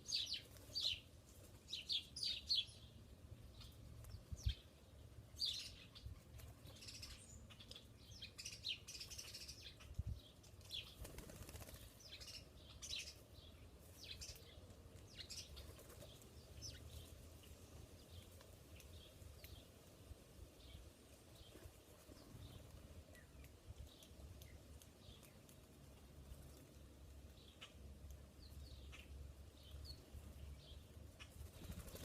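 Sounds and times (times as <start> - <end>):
birds fluttering wings: 10.6 - 12.3, 15.5 - 16.3, 31.3 - 32.0.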